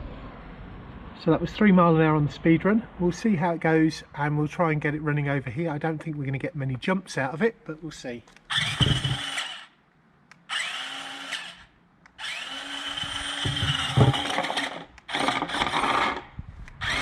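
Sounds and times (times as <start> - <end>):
electric motor whining: 8.5 - 9.7, 10.5 - 17.0.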